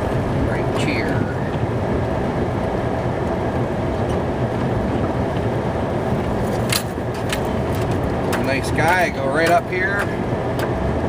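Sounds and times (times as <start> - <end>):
truck engine rumble from cab: 0.0 - 11.0.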